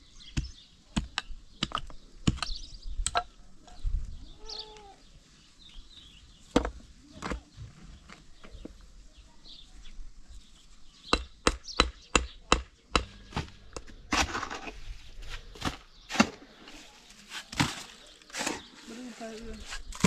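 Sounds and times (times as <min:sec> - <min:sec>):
hand tool striking hard material: 0:11.1 - 0:14.7, 0:17.3 - 0:18.6.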